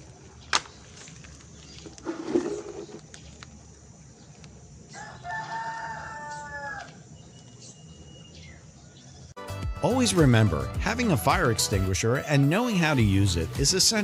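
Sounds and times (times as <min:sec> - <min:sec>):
rooster crowing: 0:04.9 - 0:07.1.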